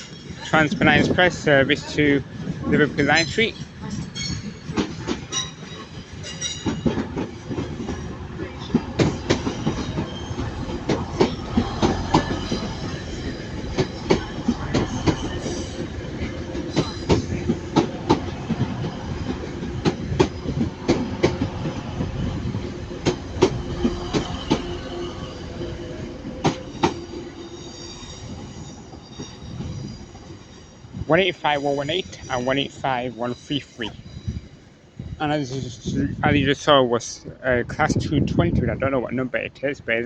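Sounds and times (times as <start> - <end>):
train rumble: 0.0 - 40.0
train wheels clacking over rail joints: 3.2 - 27.4
wheel squeal: 8.6 - 18.0, 23.2 - 34.6.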